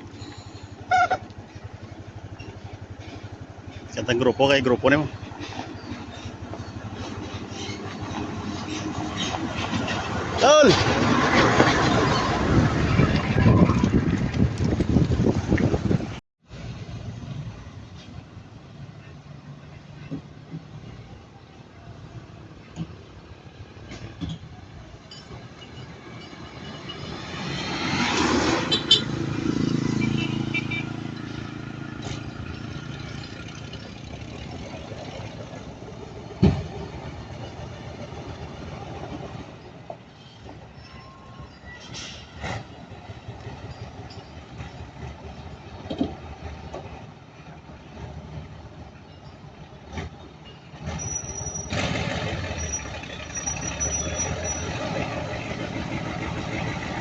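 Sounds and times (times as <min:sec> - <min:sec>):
vehicle rumble: 0:00.0 - 0:57.0
heavy truck driving past: 0:26.5 - 0:39.5.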